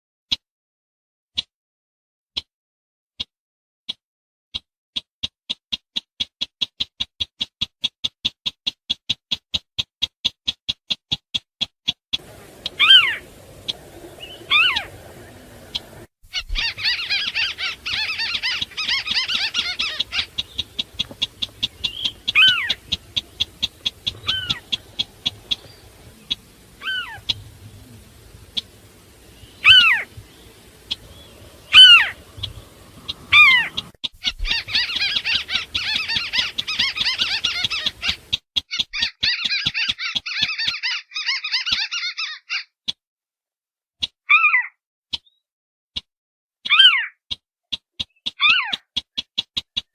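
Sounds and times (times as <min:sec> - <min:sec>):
crake sharply falling calls: 0:12.2 - 0:38.3
fast chattering trills: 0:12.2 - 0:38.4
quick ticking notes: 0:16.7 - 0:34.0.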